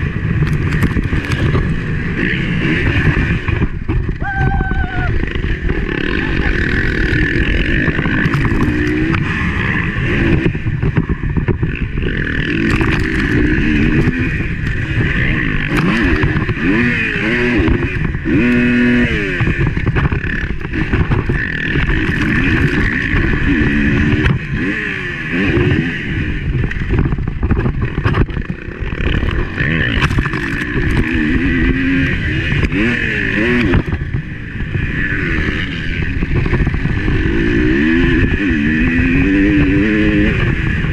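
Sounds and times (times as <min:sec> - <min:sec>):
motocross bike engine revving: 0:00.0 - 0:40.9
wind rushing: 0:04.0 - 0:08.2.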